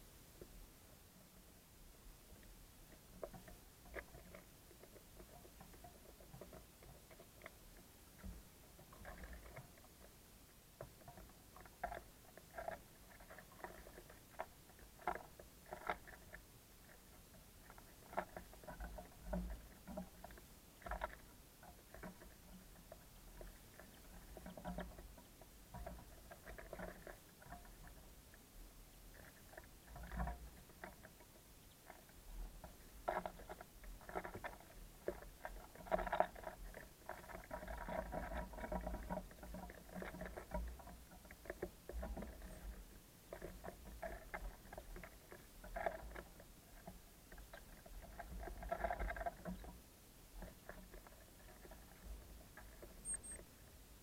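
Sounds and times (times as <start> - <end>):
birds pecking seed: 2.3 - 54.0.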